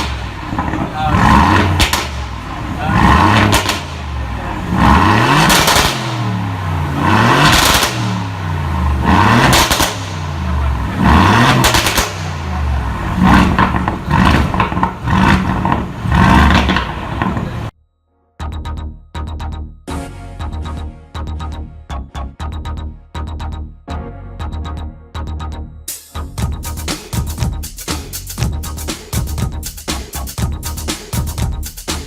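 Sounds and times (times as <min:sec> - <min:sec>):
exhaust pops and crackles: 0:00.0 - 0:04.1, 0:05.4 - 0:06.2, 0:07.4 - 0:08.2, 0:09.4 - 0:17.7
car engine revving: 0:00.0 - 0:17.7.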